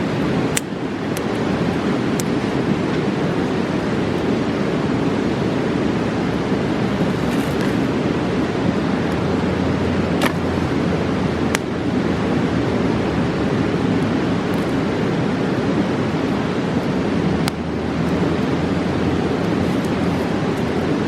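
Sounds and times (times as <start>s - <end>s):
rushing river: 0.0s - 21.0s
campfire popping: 0.2s - 4.3s, 5.8s - 12.4s.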